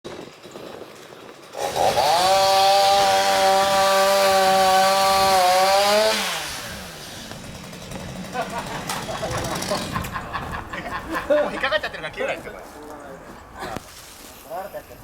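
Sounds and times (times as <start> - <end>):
chainsaw revving and idling: 0.2 - 10.2.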